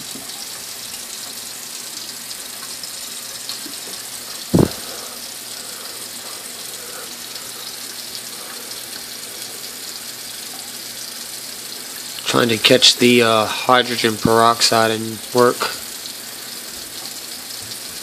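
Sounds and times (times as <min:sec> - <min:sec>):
tap water running into sink: 0:00.0 - 0:18.0
dull thump: 0:04.5 - 0:04.8.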